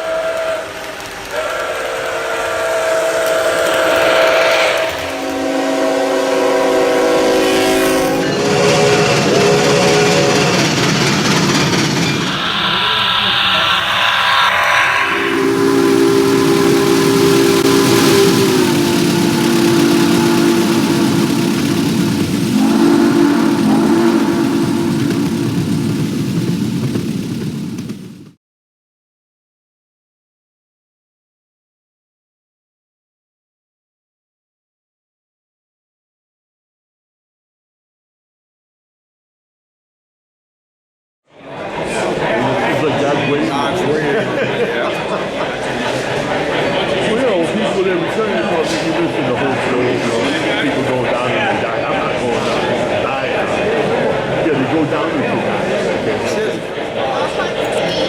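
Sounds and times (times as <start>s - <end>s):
steam locomotive chime whistle: 0.0s - 26.4s.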